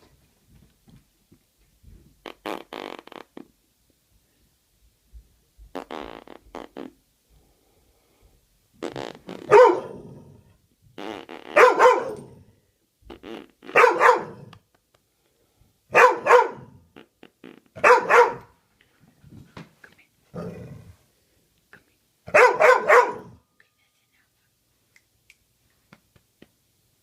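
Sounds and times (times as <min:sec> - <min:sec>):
dog barking: 0:09.5 - 0:10.0, 0:11.6 - 0:12.4, 0:13.7 - 0:14.5, 0:15.9 - 0:16.8, 0:17.8 - 0:18.6, 0:22.3 - 0:23.4.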